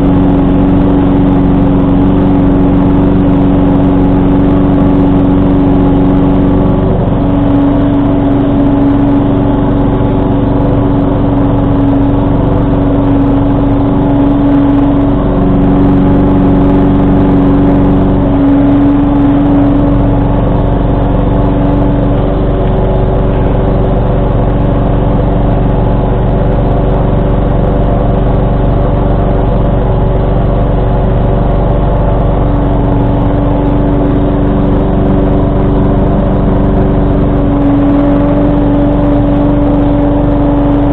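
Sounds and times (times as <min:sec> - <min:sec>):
garden tractor engine running: 0:00.0 - 0:40.9.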